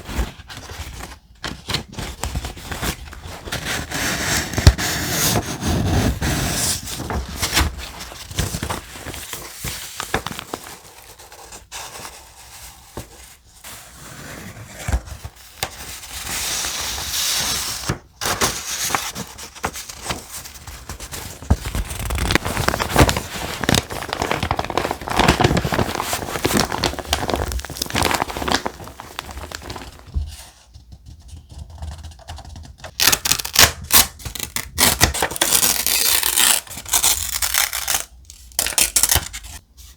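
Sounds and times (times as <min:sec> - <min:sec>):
paper rustling and tearing: 0:00.0 - 0:11.2, 0:16.5 - 0:30.5, 0:32.9 - 0:39.6
sharp paper crackles: 0:18.8 - 0:30.3.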